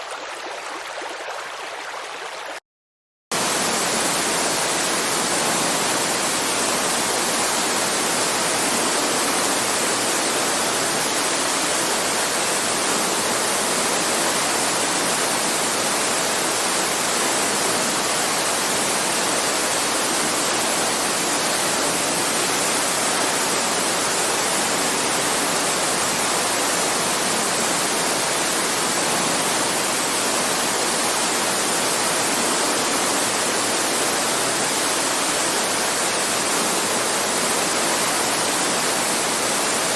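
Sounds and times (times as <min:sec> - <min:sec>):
creek water babbling: 0:00.0 - 0:02.6.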